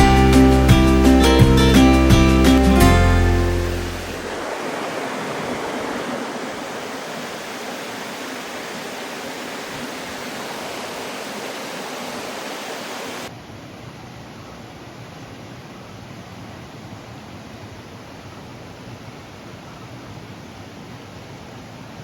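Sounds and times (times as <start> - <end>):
river water rushing: 2.5 - 13.3.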